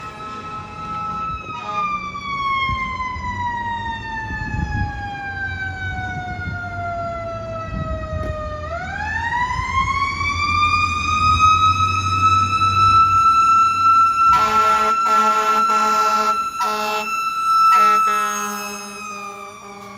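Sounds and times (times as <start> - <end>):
engine rumbling: 0.0 - 14.9.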